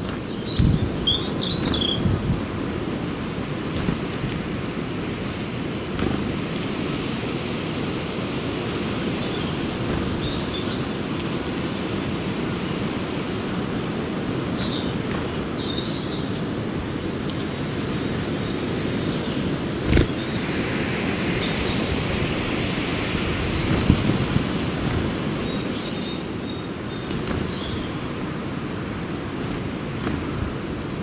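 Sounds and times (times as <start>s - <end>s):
high bird chirps: 0.1s - 2.1s, 24.9s - 28.1s.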